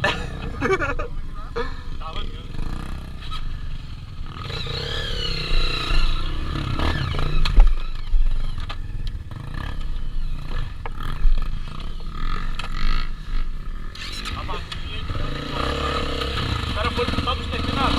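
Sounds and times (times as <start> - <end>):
motorcycle engine revving: 0.0 - 17.9
motorcycle engines running: 0.0 - 17.9.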